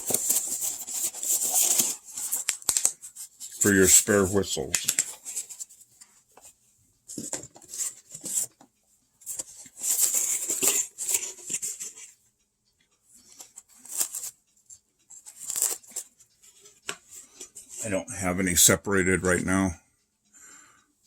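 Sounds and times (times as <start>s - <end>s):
hands handling plastic parts: 0.0s - 5.8s, 7.1s - 12.1s.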